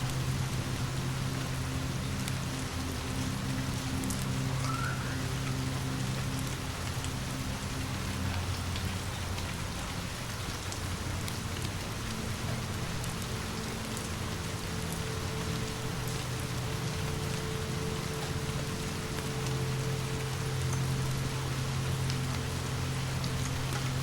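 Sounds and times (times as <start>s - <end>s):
low steady hum: 0.0s - 24.0s
rain falling: 0.0s - 24.0s.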